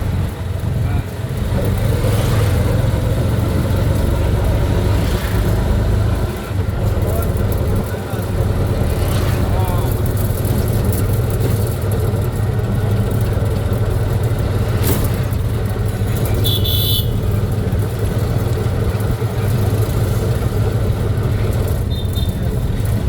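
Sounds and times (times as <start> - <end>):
road vehicle running hum: 0.0 - 23.0
short high-pitched horn toot: 16.4 - 17.2.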